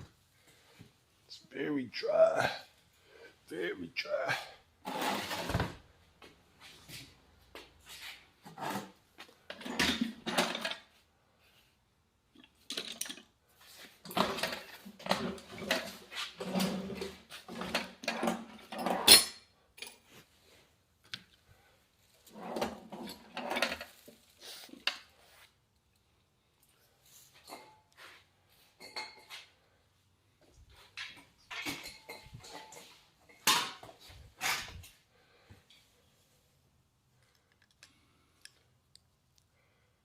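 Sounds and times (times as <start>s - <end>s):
metal parts and tools clinking: 12.4s - 13.3s, 14.0s - 20.1s.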